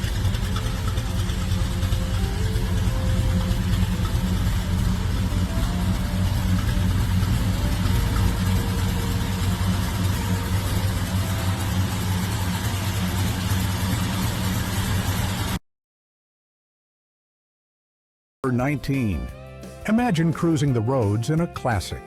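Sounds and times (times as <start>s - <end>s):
car engine idling: 0.0s - 15.6s.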